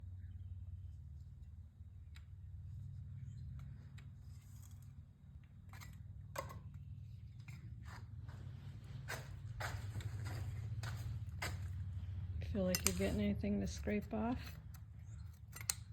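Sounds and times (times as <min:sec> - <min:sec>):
steady low hum: 0:00.0 - 0:15.9
metal scraper scratching gasket: 0:14.4 - 0:15.9.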